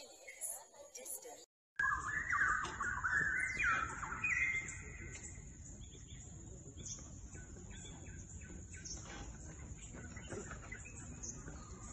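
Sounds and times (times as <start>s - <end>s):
bird whistling: 1.8s - 6.2s.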